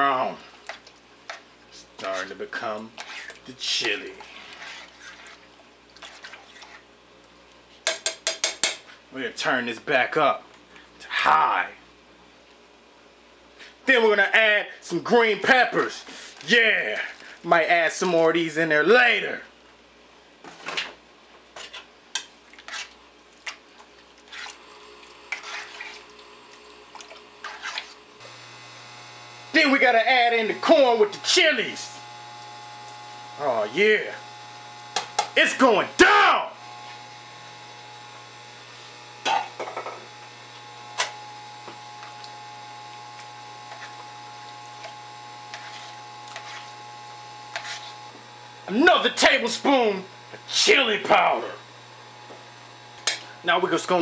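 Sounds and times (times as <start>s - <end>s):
electrical mains hum: 0.0s - 54.0s
spoon stirring and scraping pot: 0.6s - 6.9s, 7.8s - 9.0s, 21.5s - 26.3s, 27.4s - 28.1s, 43.6s - 44.2s, 44.8s - 46.8s, 47.5s - 48.0s.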